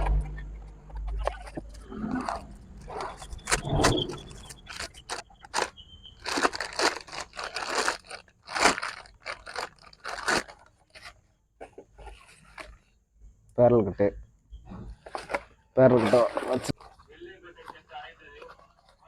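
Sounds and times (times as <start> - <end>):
plastic and paper packaging rustling: 0.0 - 11.2, 15.0 - 19.0
parts scraping and crackling: 0.0 - 12.9.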